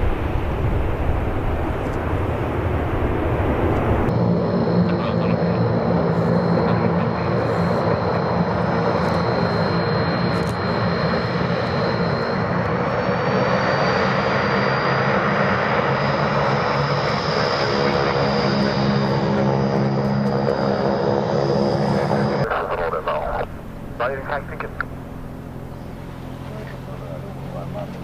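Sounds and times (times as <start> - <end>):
aircraft engines whining: 0.0 - 28.0
rising whine: 0.0 - 28.0.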